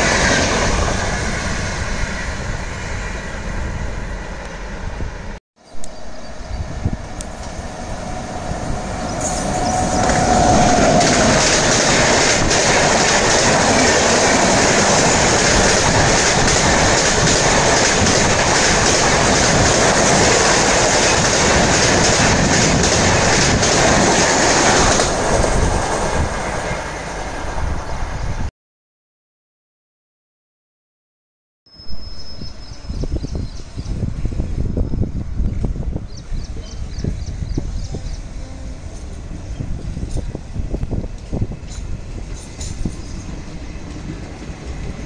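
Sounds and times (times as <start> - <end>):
electric locomotive whine: 0.0 - 28.5, 31.7 - 45.0
train passing at high speed: 0.0 - 28.5, 31.9 - 45.0
wheels clacking over rail joints: 9.1 - 26.1.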